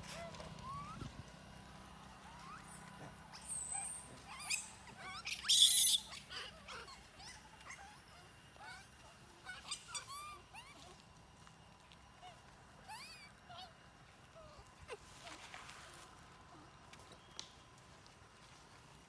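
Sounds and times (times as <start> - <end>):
animal chirps: 2.2 - 10.9
loud harsh animal squeal: 3.4 - 7.4.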